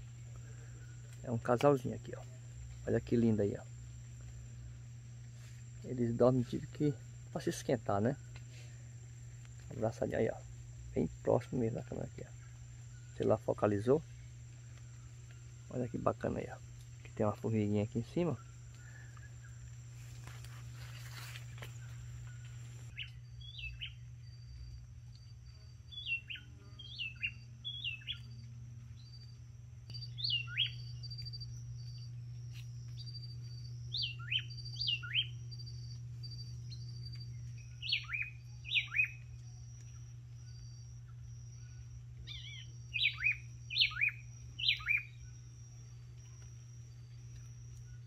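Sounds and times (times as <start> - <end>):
high insect trill: 0.0 - 48.0
birds calling: 10.2 - 24.1, 29.9 - 32.1, 32.8 - 39.3, 42.2 - 45.3.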